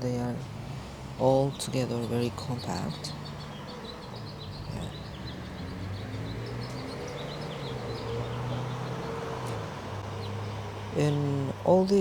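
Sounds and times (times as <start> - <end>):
road traffic hum: 0.0 - 12.0
songbirds chirping: 0.0 - 12.0.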